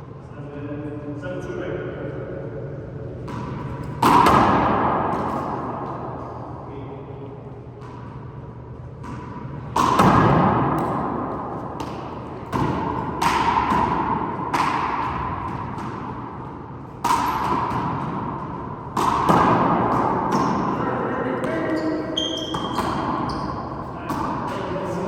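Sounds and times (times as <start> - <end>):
handball smacking off walls: 9.0 - 11.1, 11.8 - 16.2, 17.0 - 20.8, 21.4 - 24.8.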